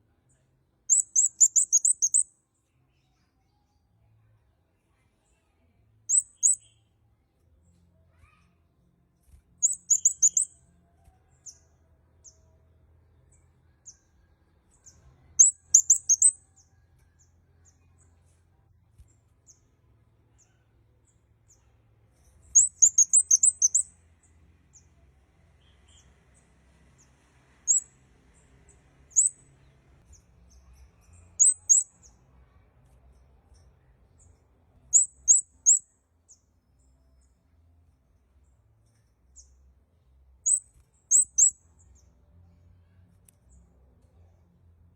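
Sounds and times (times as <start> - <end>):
bird chirping high and quick: 0.9 - 2.4, 6.1 - 7.0, 9.6 - 10.7, 14.8 - 16.6, 22.4 - 24.0, 27.6 - 28.0, 29.1 - 29.5, 30.1 - 32.2, 34.9 - 35.9, 40.4 - 42.0.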